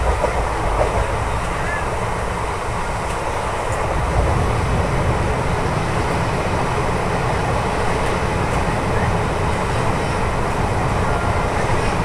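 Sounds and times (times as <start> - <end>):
wind rushing: 0.0 - 8.4
train wheels rumbling on rails: 0.0 - 12.0.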